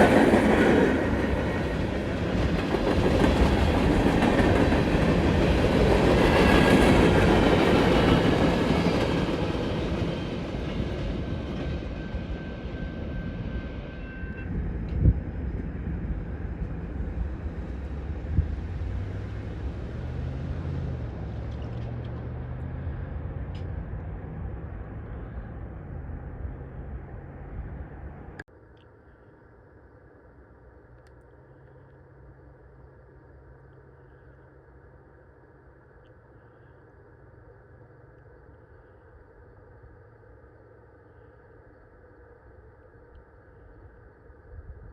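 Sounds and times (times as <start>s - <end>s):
train clanks: 0.0s - 20.2s, 20.9s - 25.3s
freight train cars rolling: 0.0s - 28.4s.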